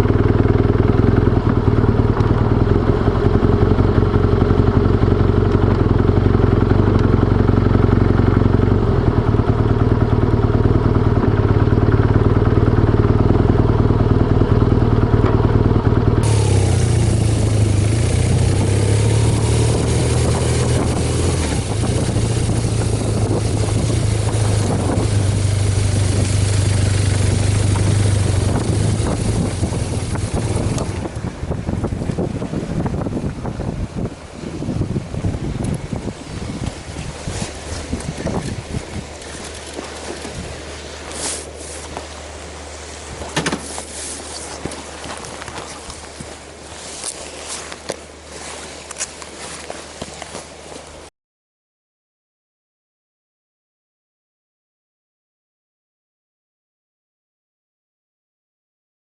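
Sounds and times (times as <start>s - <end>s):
motorcycle engine running: 0.0s - 48.1s
wind noise on microphone: 15.3s - 48.8s.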